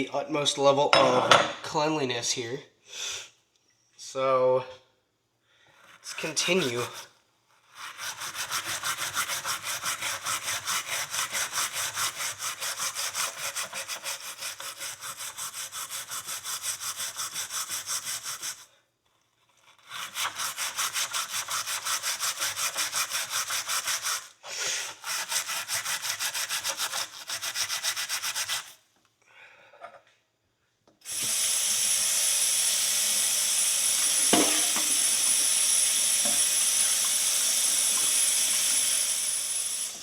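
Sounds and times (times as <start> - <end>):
steel wool scrubbing metal: 5.9 - 18.6, 34.1 - 35.5.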